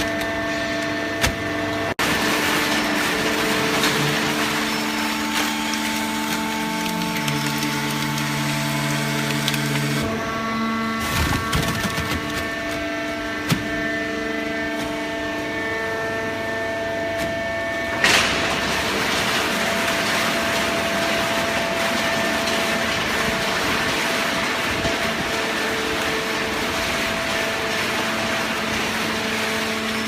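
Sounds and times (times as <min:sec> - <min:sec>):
baling press machine hum: 0:00.0 - 0:30.0.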